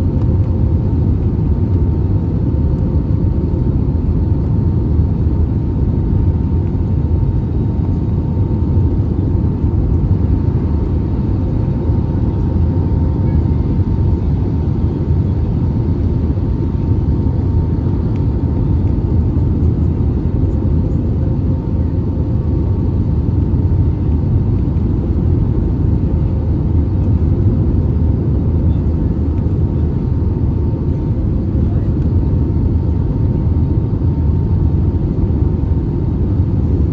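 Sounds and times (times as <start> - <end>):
airplane cabin rumble: 0.0 - 36.9.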